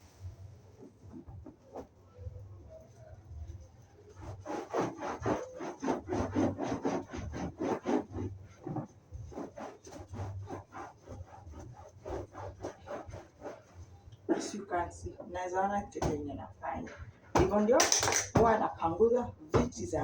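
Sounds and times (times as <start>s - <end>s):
sponge rubbing sofa seat: 0.6s - 15.1s.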